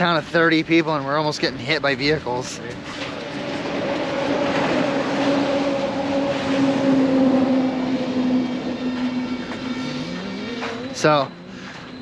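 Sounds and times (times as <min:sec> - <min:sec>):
vehicle passing by: 0:02.7 - 0:12.0.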